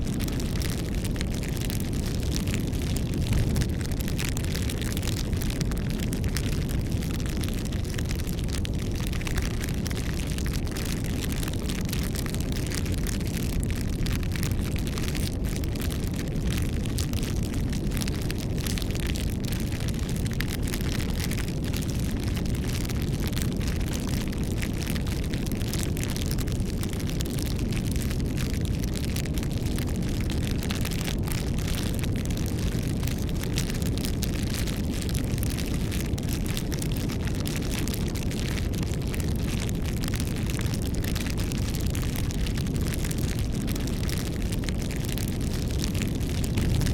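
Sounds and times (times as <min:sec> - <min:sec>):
rush of flames: 0:00.0 - 0:46.9
wood crackling and popping: 0:00.0 - 0:46.9.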